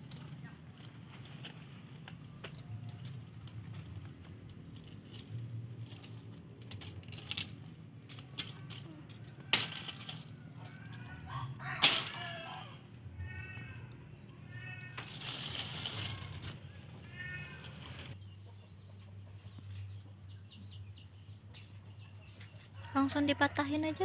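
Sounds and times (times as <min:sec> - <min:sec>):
sickle hacking leaves: 0:11.6 - 0:12.7.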